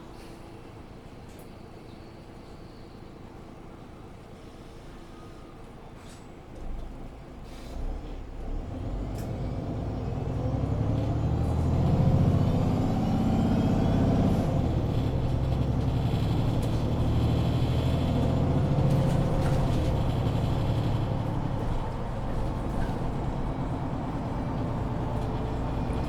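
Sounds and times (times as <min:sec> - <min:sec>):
bus engine accelerating: 0:06.6 - 0:26.0.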